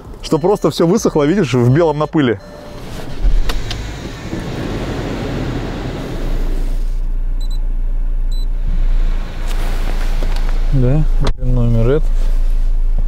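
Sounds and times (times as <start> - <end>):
car engine idling: 0.0 - 13.0
faint short high beeps: 1.6 - 2.9.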